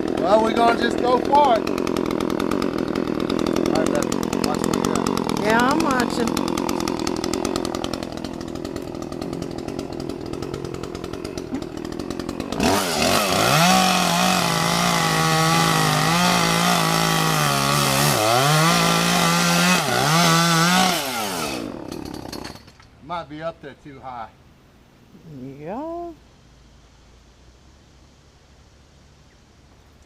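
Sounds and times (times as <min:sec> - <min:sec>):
chainsaw cutting: 0:00.0 - 0:23.0.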